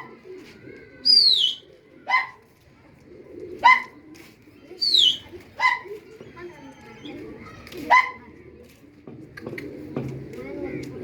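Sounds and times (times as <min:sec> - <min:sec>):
high falling bird calls: 0:01.0 - 0:01.6, 0:04.8 - 0:05.3.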